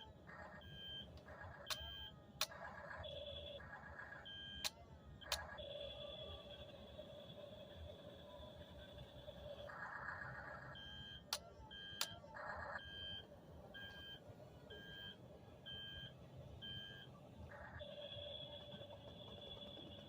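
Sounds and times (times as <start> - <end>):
sharp clicks: 4.6 - 5.5.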